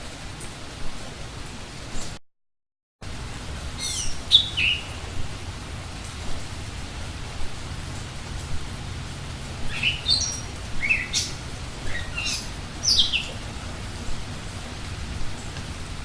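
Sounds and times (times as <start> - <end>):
songbird chirping: 3.8 - 5.4, 7.9 - 13.5.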